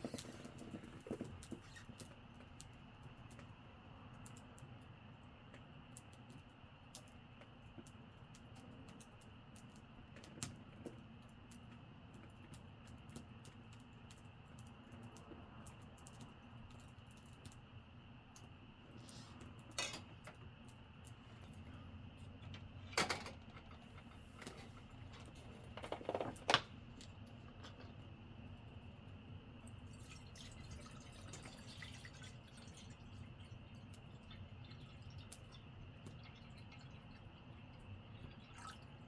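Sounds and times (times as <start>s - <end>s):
low steady hum: 14.7s - 39.0s.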